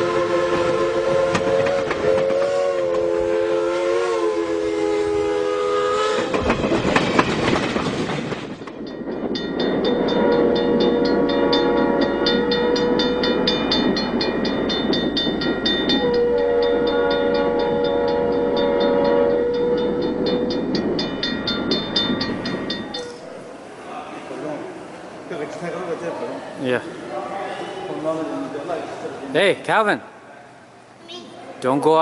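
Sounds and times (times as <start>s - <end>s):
train horn chord: 0.0s - 6.4s, 9.9s - 13.8s, 15.9s - 20.6s
train wheels clicking: 0.0s - 23.6s.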